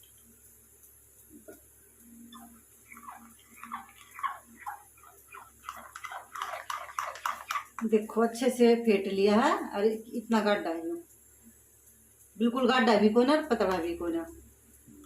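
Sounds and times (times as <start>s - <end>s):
utensil beating batter in a mug: 1.4s - 10.8s, 12.8s - 15.0s.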